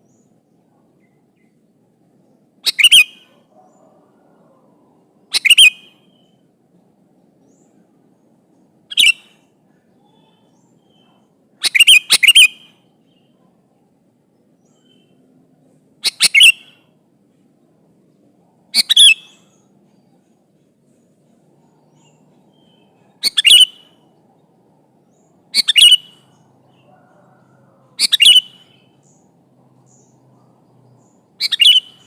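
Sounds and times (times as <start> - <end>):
bulbul calling: 2.6 - 3.8, 5.3 - 6.4, 8.9 - 9.4, 10.0 - 13.4, 16.0 - 16.9, 18.7 - 19.6, 21.9 - 24.0, 25.1 - 29.3, 31.0 - 32.0.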